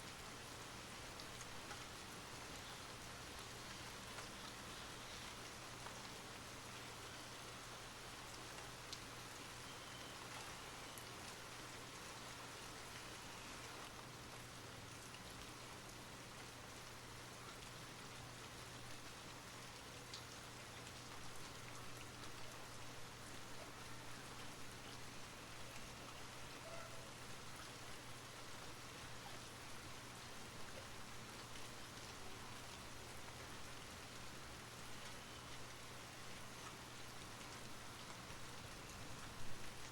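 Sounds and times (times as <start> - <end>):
steady rain falling: 0.0 - 39.9
rain drop ticks: 1.0 - 29.8, 30.7 - 39.9.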